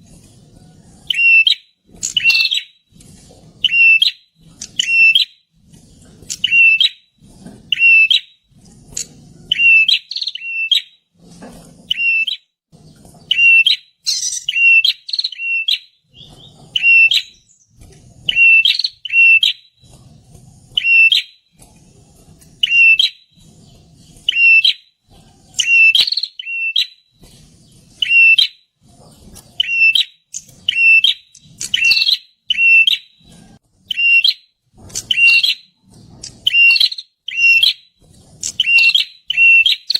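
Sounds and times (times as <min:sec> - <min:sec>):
bird chirping sharply: 0:01.1 - 0:02.7, 0:13.2 - 0:17.7, 0:29.6 - 0:33.2, 0:38.4 - 0:39.9.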